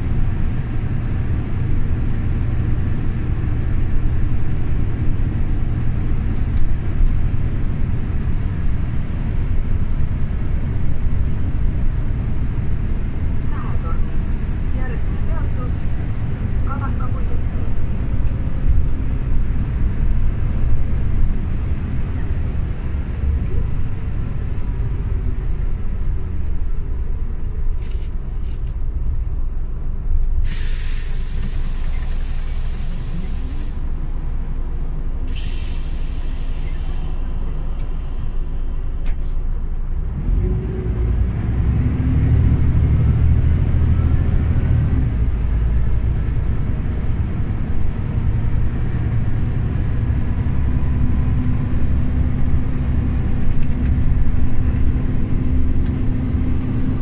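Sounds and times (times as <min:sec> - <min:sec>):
bus diesel engine: 0:00.0 - 0:57.0
compressed air hiss: 0:30.4 - 0:33.9, 0:35.3 - 0:36.7.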